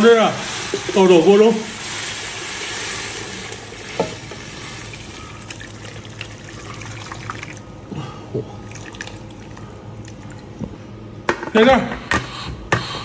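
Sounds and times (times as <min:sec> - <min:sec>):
broth pouring through strainer: 0:00.0 - 0:07.8.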